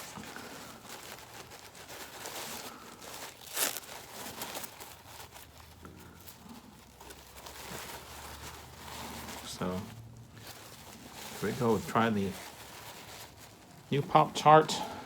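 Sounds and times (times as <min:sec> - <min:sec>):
rustling and crinkling: 0:00.0 - 0:15.0.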